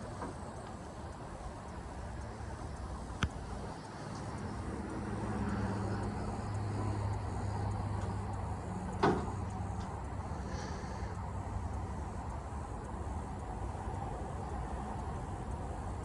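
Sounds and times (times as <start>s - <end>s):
low engine-like hum: 0.0s - 16.0s.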